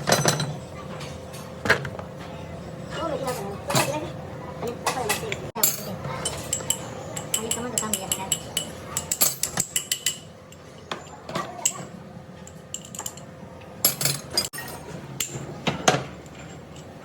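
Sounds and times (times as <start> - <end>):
metal tools clinking and knocking: 4.9 - 17.0.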